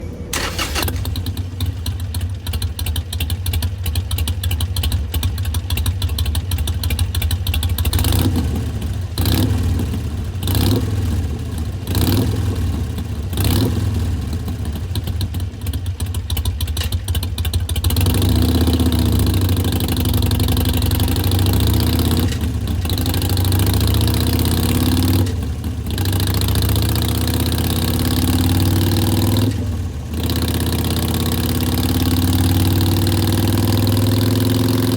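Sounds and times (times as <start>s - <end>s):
motorcycle throttle blips: 0.3s - 11.0s
motorcycle engine idling: 0.3s - 34.9s.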